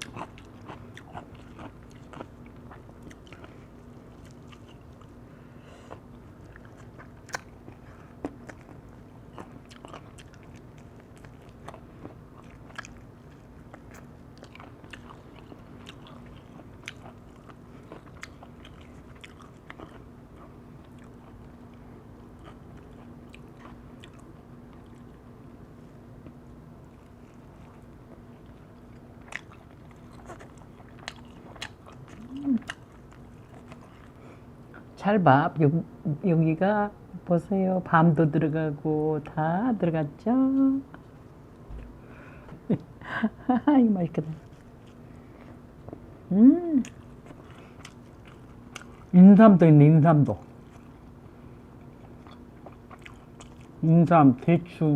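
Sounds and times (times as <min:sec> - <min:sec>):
chewing and biting: 0:00.0 - 0:05.2, 0:05.9 - 0:25.3, 0:26.2 - 0:34.9, 0:44.4 - 0:46.1, 0:46.8 - 0:49.2, 0:50.2 - 0:53.8
steady low hum: 0:00.0 - 0:54.9.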